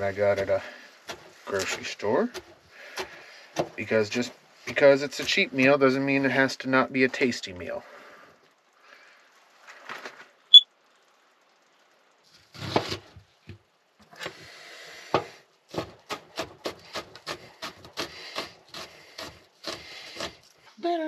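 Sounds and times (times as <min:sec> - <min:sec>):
rustling: 0:08.9 - 0:10.5.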